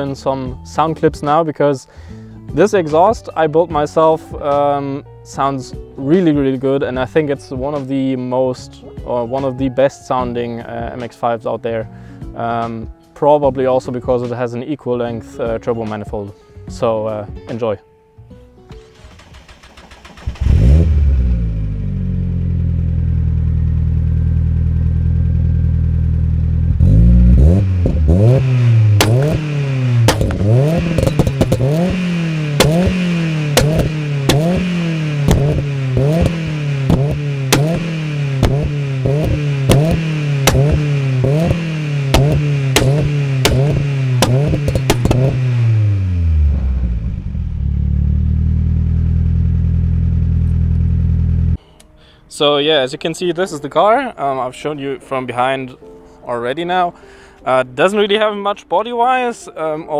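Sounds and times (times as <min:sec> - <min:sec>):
exhaust cracks: 0:18.8 - 0:51.6
turbocharged car engine revving: 0:18.9 - 0:51.6.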